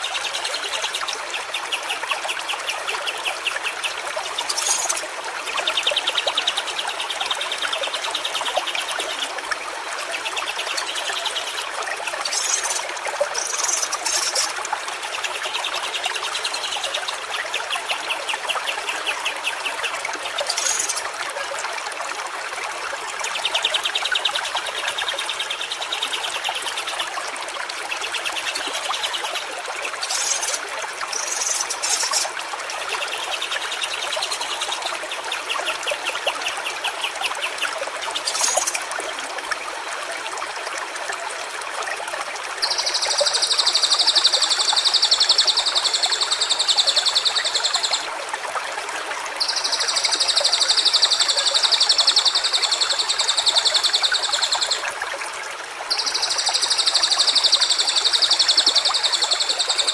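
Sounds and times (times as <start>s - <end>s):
stream trickling: 0.0s - 59.9s
bird chirps: 55.9s - 59.9s.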